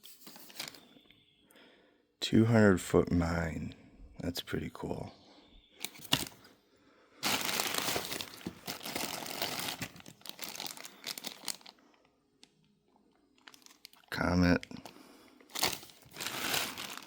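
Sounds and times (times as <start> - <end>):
packaging crinkling and rustling: 0.0 - 0.9, 5.8 - 6.5, 7.2 - 11.8, 13.4 - 17.0.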